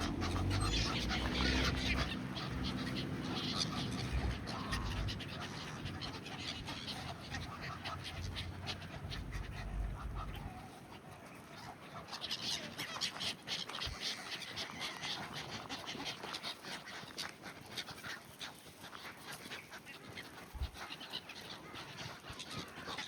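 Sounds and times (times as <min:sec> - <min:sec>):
low rumble: 0:00.0 - 0:10.6
waterfowl calling: 0:00.0 - 0:23.0.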